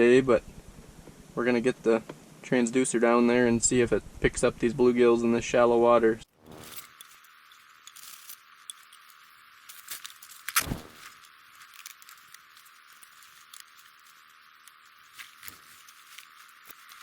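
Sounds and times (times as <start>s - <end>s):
gear rustling and clicking: 6.5s - 17.0s
sharp knock: 10.6s - 11.0s.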